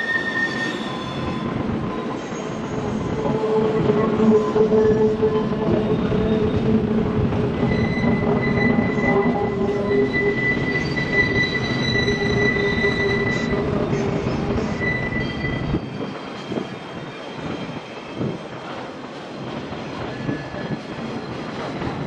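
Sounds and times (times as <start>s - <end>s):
high-pitched wheel squeals: 0.0s - 6.7s, 7.5s - 16.9s
freight train rumbling past: 0.8s - 22.0s.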